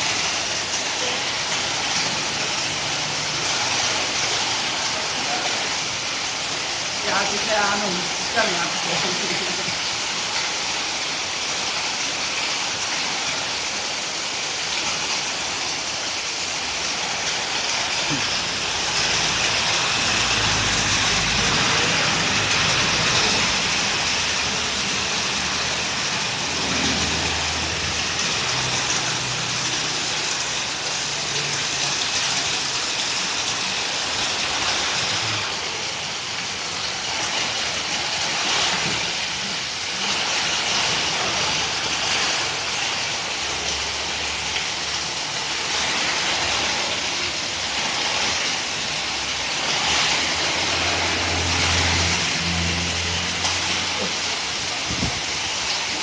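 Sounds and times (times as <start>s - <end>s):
rain pouring with wind: 0.0s - 56.0s.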